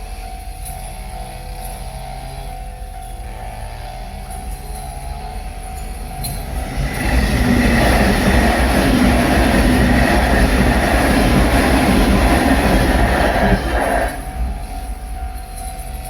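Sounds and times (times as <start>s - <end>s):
electric train rumbling past: 2.8s - 16.0s
level crossing warning bell: 4.2s - 16.0s.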